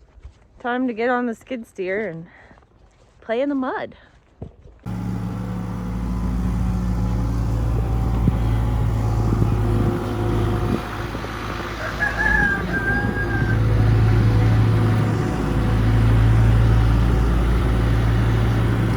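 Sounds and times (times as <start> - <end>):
diesel engine running: 4.9 - 18.9.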